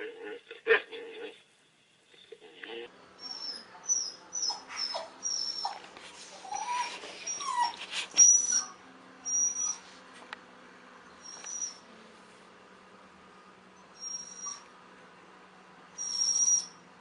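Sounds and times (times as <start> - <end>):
dog whimpering: 3.2 - 9.8, 11.2 - 11.9, 13.9 - 14.7, 16.0 - 16.8.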